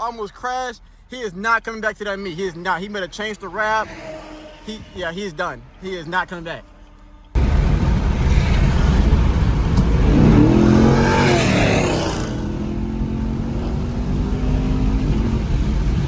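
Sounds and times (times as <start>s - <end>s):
car engine accelerating hard: 7.4s - 16.0s.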